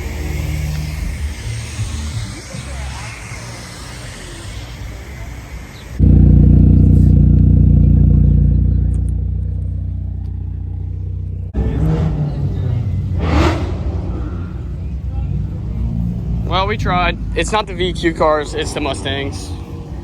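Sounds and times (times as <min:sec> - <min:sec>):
car engine at high revs: 0:06.0 - 0:20.0.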